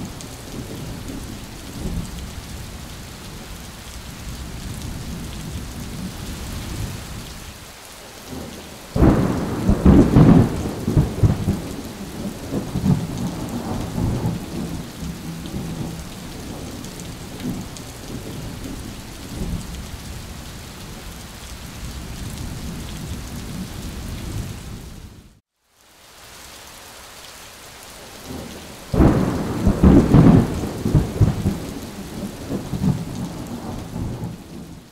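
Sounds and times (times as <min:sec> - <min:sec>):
rain falling: 0:00.0 - 0:34.9
rumbling thunderclaps: 0:08.3 - 0:19.7, 0:29.0 - 0:34.8.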